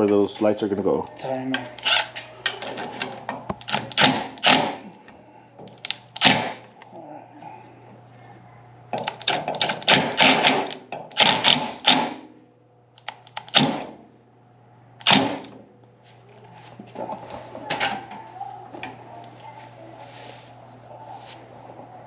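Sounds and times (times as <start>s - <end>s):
faint low hum: 0.0s - 10.1s
hard parts clicking and clattering: 1.5s - 4.8s, 8.9s - 12.2s.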